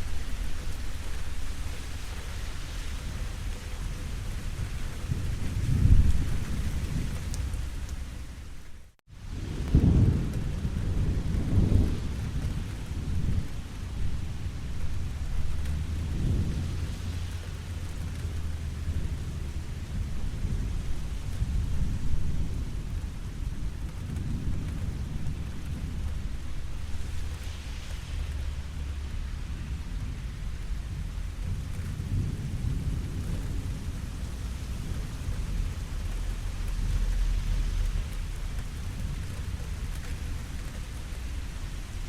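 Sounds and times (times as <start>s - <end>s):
low rolling thunder: 0.0s - 42.0s
steady rain: 0.0s - 42.0s.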